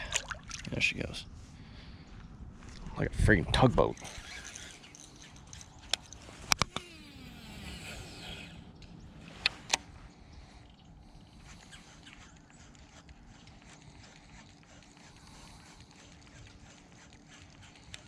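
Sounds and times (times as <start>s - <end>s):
faint steady hum: 0.0s - 18.0s
fishing reel spool whirring: 3.5s - 18.0s
sharp clicks: 3.9s - 7.0s.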